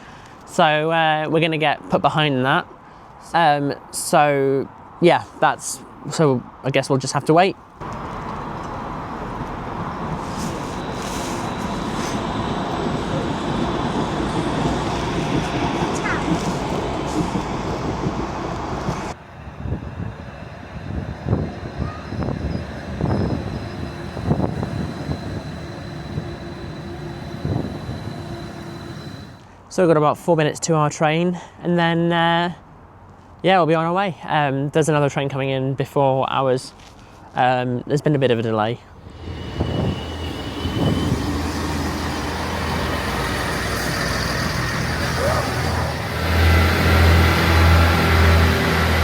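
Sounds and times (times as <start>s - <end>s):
train rumbling: 7.8s - 29.4s, 38.9s - 49.0s
faint steady whine: 19.6s - 29.4s, 39.0s - 43.8s.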